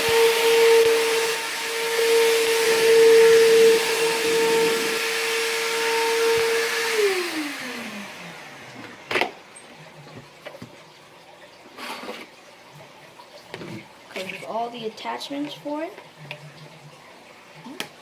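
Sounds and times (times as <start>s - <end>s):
vacuum motor winding down: 0.0s - 9.2s
vacuum cleaner running: 0.0s - 10.2s.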